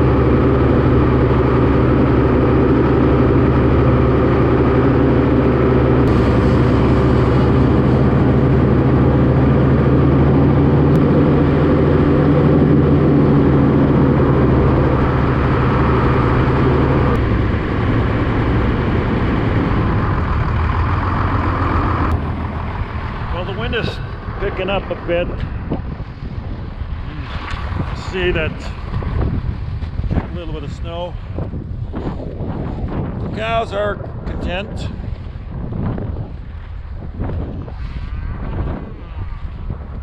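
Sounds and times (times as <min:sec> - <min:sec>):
tractor engine running: 0:00.0 - 0:26.9.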